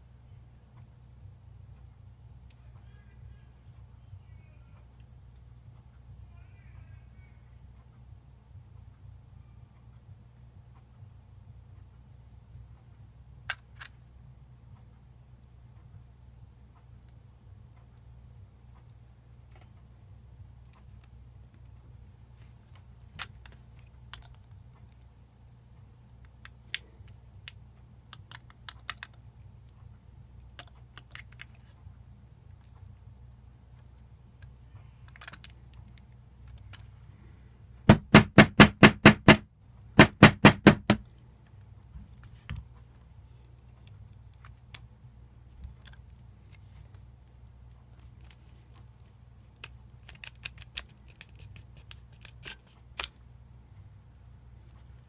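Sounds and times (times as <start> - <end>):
loud sharp knocks: 37.9 - 39.4, 40.0 - 41.0.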